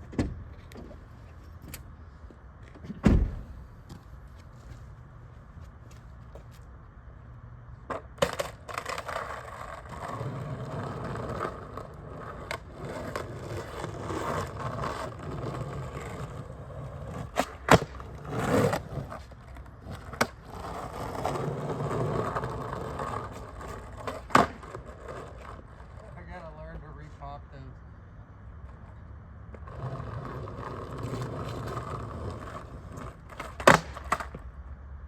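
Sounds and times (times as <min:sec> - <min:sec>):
skateboard wheels rolling: 0:00.0 - 0:27.2, 0:28.3 - 0:35.0
skateboard clacking on ground: 0:07.8 - 0:26.2, 0:28.7 - 0:34.5.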